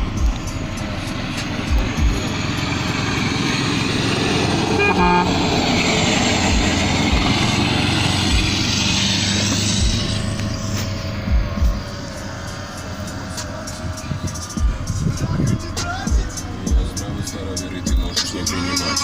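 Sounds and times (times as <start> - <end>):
dull low thumps: 0.0 - 3.6, 6.4 - 8.8, 9.4 - 18.2
car exhaust note: 0.0 - 19.0
short horn toot: 4.7 - 5.4.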